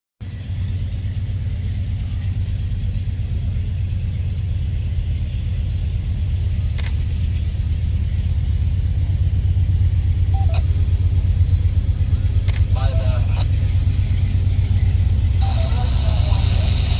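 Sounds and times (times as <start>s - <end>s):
diesel locomotives rumbling: 0.2s - 16.9s.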